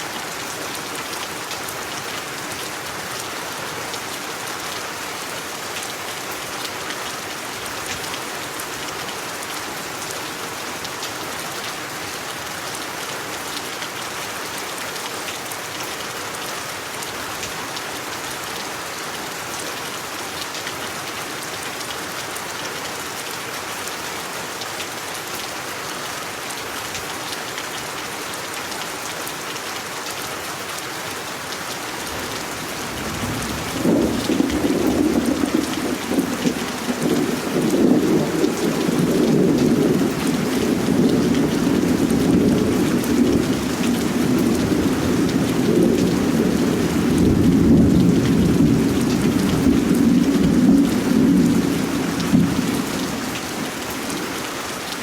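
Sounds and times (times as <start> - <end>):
steady rain: 0.0 - 55.0
thunder rumbling: 32.2 - 54.3.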